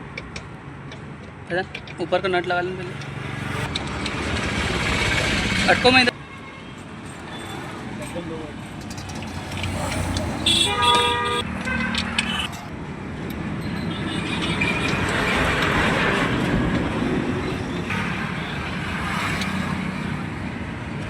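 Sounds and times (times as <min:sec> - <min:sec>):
road traffic noise: 0:00.0 - 0:21.0
vehicle passing by: 0:02.4 - 0:06.1, 0:07.1 - 0:12.7.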